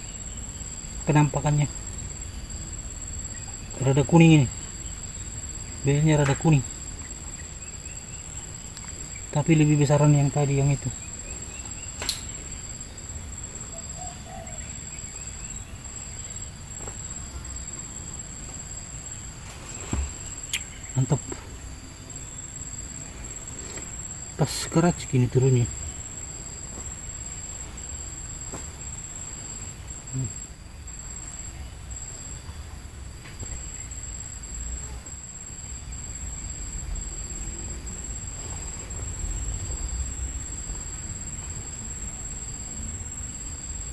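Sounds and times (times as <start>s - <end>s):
high insect drone: 0.0s - 43.9s
sharp click: 12.0s - 12.4s
dove cooing: 13.6s - 14.9s.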